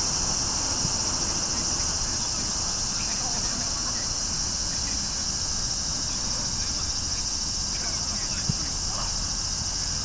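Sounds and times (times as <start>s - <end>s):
faint distant voices: 0.0s - 10.0s
insects chirring: 0.0s - 10.0s.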